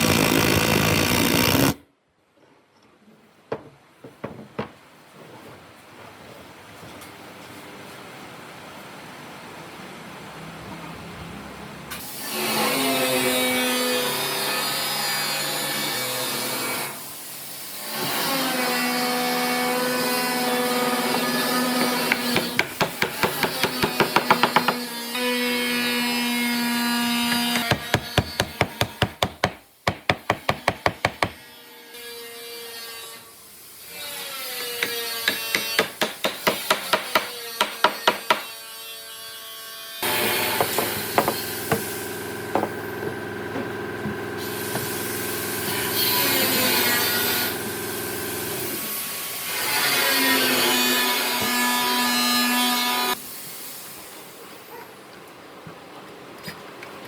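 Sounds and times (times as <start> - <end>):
power tool motor whine: 0.0 - 1.8, 40.0 - 48.8
fast sharp knocks: 40.4 - 45.0.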